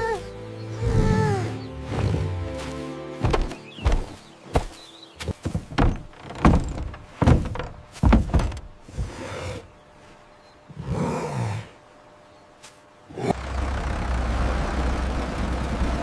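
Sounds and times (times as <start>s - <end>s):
thuds and knocks: 3.2s - 8.8s.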